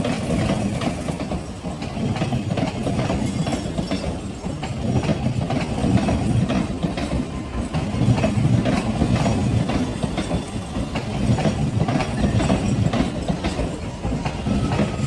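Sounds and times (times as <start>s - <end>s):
train rumbling past: 0.0s - 15.0s
wheels clicking over rail joints: 0.0s - 15.0s.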